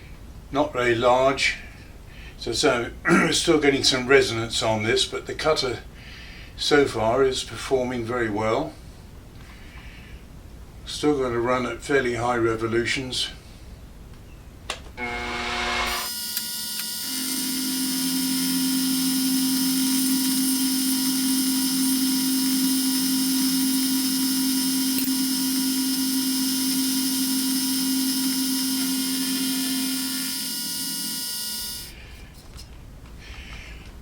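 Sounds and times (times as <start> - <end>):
milling machine spindle winding up: 15.0 - 32.0.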